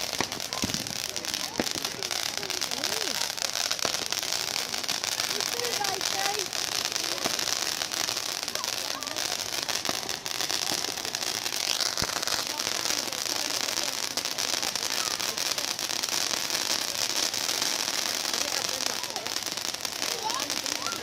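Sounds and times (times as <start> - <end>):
bonfire crackling and hissing: 0.0 - 21.0
sharp pops and snaps: 3.6 - 5.2, 11.4 - 12.5.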